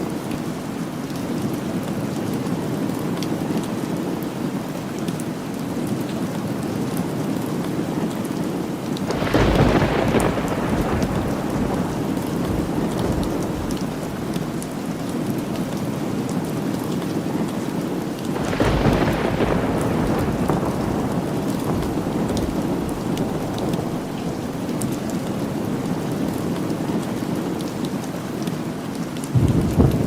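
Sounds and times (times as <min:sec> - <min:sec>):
rain: 0:00.0 - 0:30.0
thunder rumbling: 0:09.1 - 0:15.8, 0:18.3 - 0:27.8, 0:29.3 - 0:30.0.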